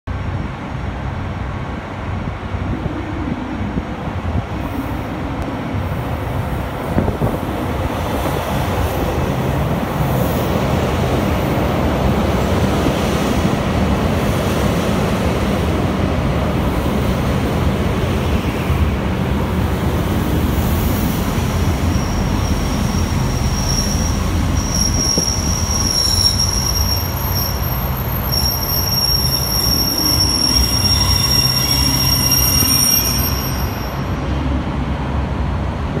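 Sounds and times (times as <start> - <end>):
electric train rolling past: 0.2 - 36.0
high brake squeal: 21.5 - 34.2.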